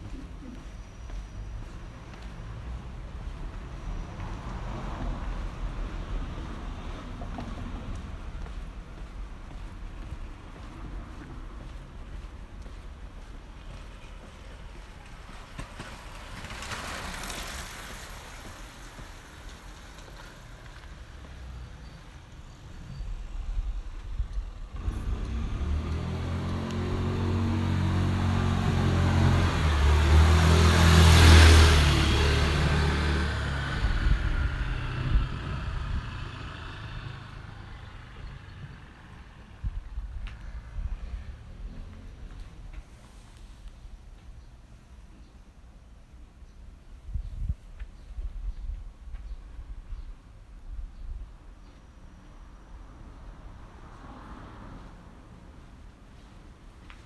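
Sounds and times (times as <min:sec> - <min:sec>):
road noise: 0:00.0 - 0:57.0
car driving past: 0:00.5 - 0:12.8, 0:15.2 - 0:43.3, 0:53.1 - 0:55.6.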